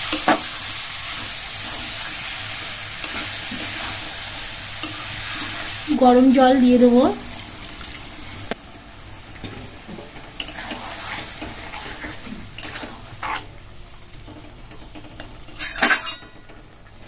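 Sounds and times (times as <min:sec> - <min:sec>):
light sizzle: 0:00.0 - 0:17.0
spatula scraping a pan: 0:10.4 - 0:13.6, 0:15.5 - 0:16.4.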